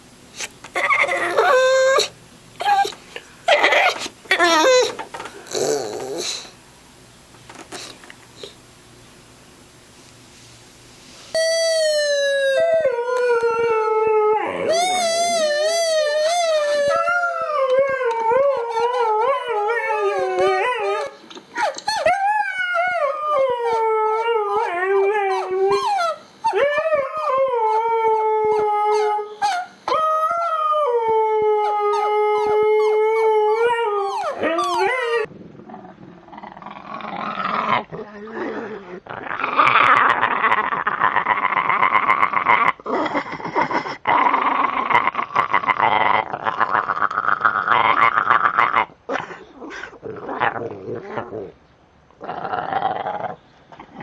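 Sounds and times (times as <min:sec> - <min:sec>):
dog howling: 0:00.8 - 0:06.5, 0:11.4 - 0:35.3.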